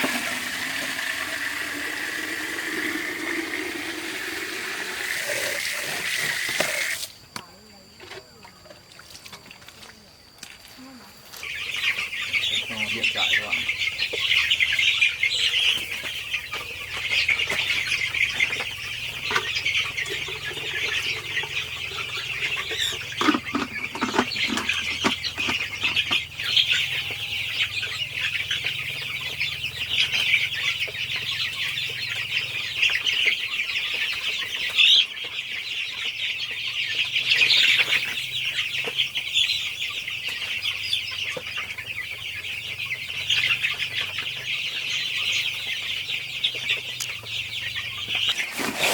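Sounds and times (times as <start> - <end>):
chicks peeping: 0.0 - 48.9.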